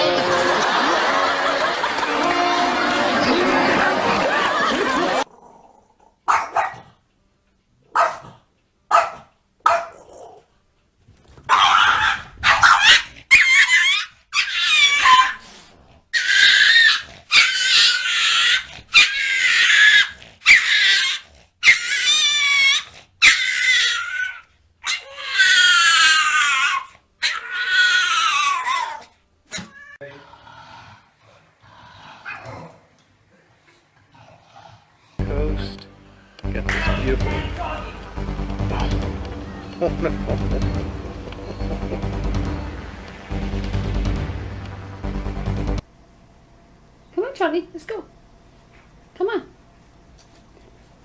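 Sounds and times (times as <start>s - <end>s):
dog high-pitched calls: 11.5s - 15.4s, 16.2s - 29.0s.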